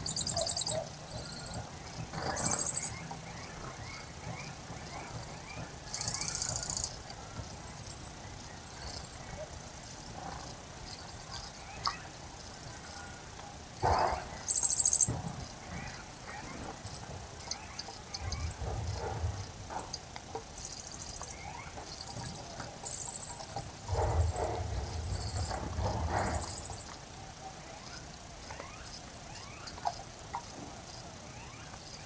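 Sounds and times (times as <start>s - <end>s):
high rapid chirping trills: 0.0s - 13.0s, 14.0s - 18.7s, 19.7s - 26.9s.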